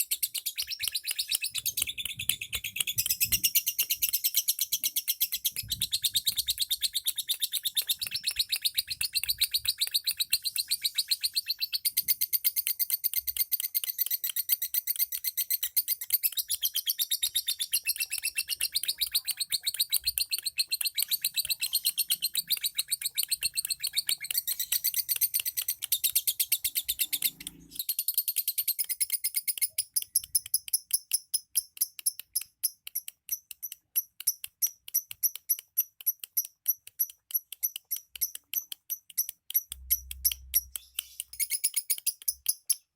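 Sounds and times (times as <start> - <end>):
lovebirds chirping: 0.0 - 12.4, 13.8 - 27.9, 39.2 - 42.7.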